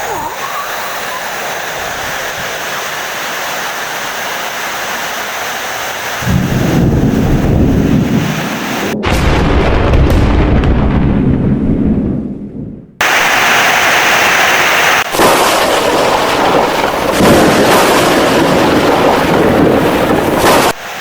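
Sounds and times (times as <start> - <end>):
rain hiss: 0.0 - 9.0, 13.0 - 21.0
deep thunder rumble: 6.2 - 13.6, 15.0 - 20.8.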